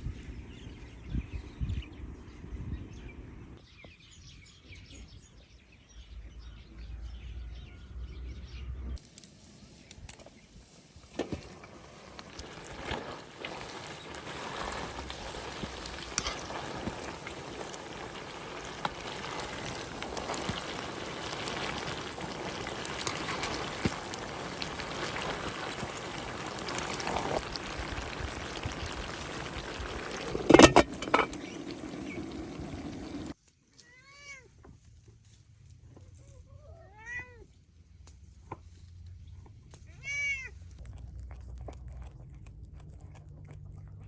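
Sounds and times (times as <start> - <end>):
meat sizzling and crackling: 11.2 - 33.4.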